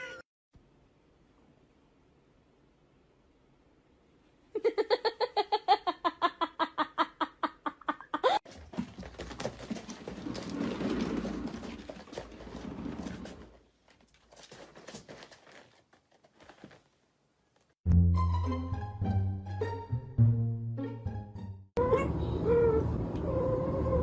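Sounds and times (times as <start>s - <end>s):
rustling and handling noises: 8.4s - 17.8s.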